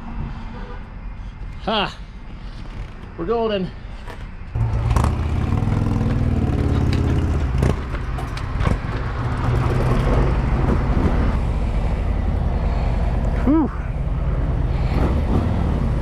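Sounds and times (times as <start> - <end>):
motorcycle engine running: 4.6 - 10.6.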